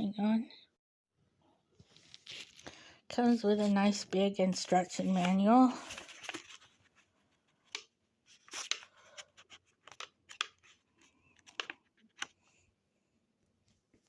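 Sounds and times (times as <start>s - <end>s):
packaging rustling and crinkling: 5.0s - 7.0s.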